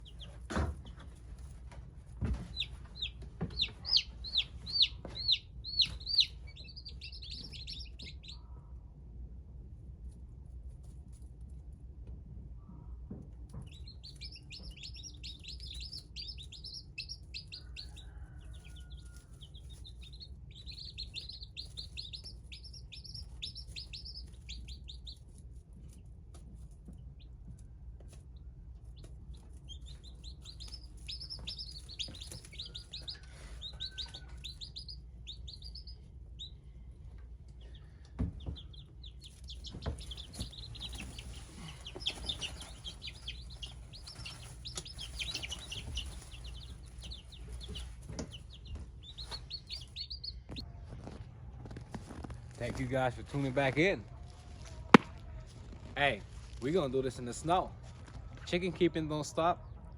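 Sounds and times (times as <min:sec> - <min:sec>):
small birds chirping: 0:00.0 - 0:01.5, 0:02.2 - 0:08.8, 0:12.8 - 0:50.7.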